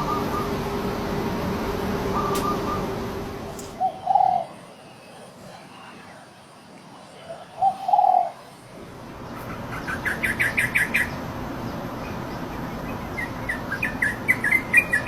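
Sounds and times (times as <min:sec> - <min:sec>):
steady low background hum: 0:00.0 - 0:15.0
small songbird chirping: 0:09.3 - 0:15.0.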